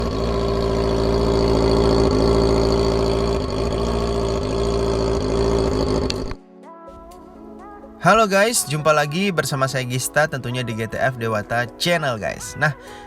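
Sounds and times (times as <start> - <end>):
motorcycle engine at steady revs: 0.0 - 6.4.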